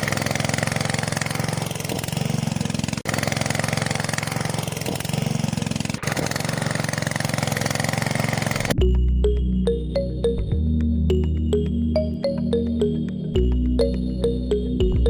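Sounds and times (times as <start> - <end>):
small engine idling: 0.0 - 8.8.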